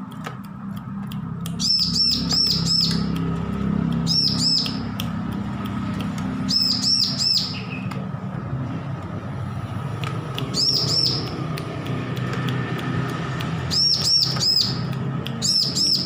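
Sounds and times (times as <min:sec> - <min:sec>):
bird chirping: 0:01.4 - 0:05.2, 0:06.2 - 0:08.1, 0:10.4 - 0:11.6, 0:13.6 - 0:16.0.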